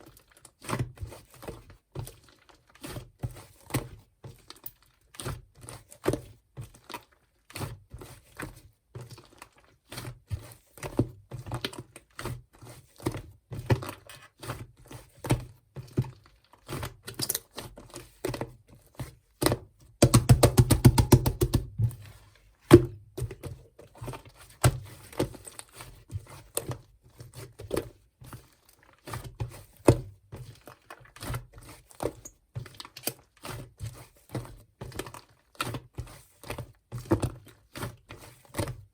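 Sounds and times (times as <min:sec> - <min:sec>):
rapid clicking pops: 0:20.0 - 0:21.8.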